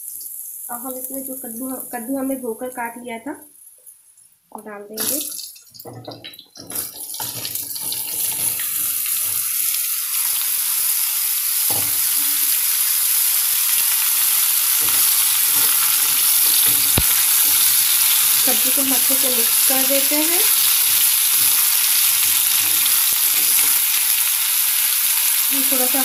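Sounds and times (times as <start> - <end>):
sizzling in hot oil: 0.0 - 2.8, 5.0 - 26.0
pieces knocking into pan: 5.8 - 9.5, 11.7 - 12.6, 14.2 - 19.4, 20.0 - 24.2
spatula stirring: 14.1 - 24.1.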